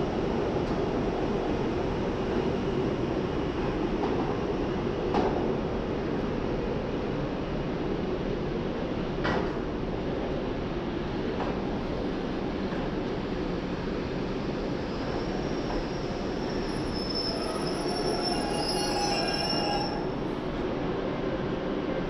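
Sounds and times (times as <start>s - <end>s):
train coaches rumbling on rails: 0.0s - 22.0s
high brake squeal: 15.2s - 20.2s.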